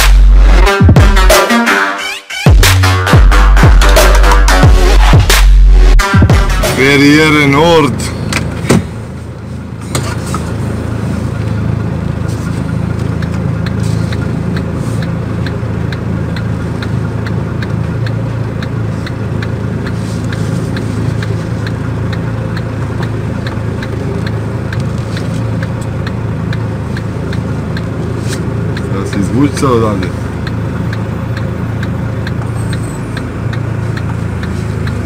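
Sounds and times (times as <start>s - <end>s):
truck diesel engine from inside cab: 3.4s - 35.0s
regular clicking: 12.7s - 35.0s.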